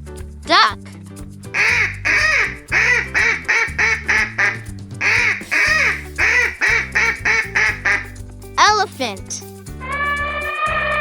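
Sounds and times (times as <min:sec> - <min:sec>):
children's music: 0:00.4 - 0:11.0
duck quacking: 0:01.6 - 0:08.2.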